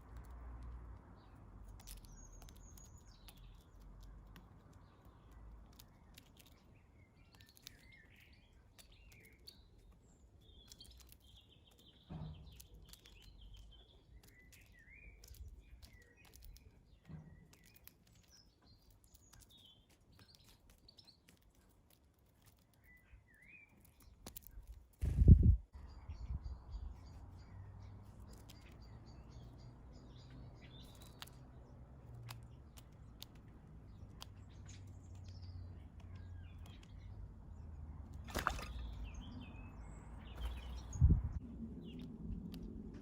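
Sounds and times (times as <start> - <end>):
small birds chirping: 0.0 - 43.0
soft low thumps: 25.0 - 25.7.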